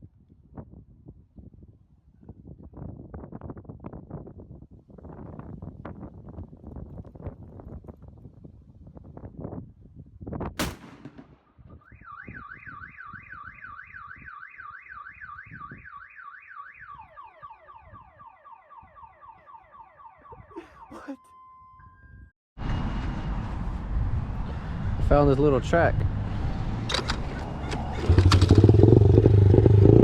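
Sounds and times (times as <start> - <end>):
sharp crack: 10.6 - 11.8
car alarm siren: 11.8 - 22.3.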